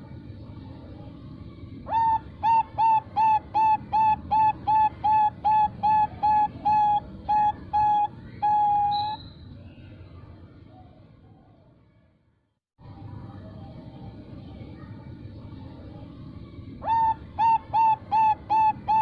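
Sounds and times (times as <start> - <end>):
dove cooing song: 1.8 - 9.2, 16.8 - 19.0.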